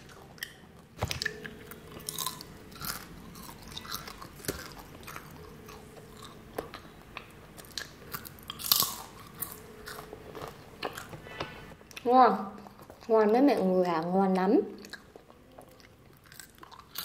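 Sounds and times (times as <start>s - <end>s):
person crunching crisp snack: 0.1s - 6.9s, 7.6s - 11.2s, 14.8s - 17.0s.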